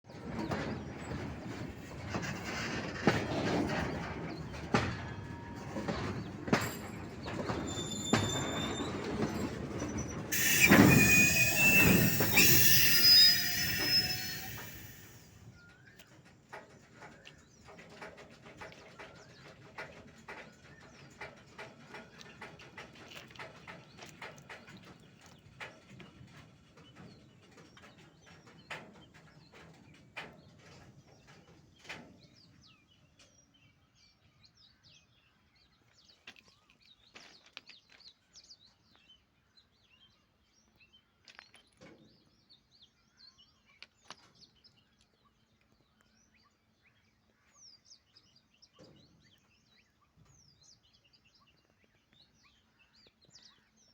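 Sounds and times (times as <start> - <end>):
train wheels rumbling over points: 0.1 - 15.4
high-pitched wheel squeal: 7.5 - 15.3.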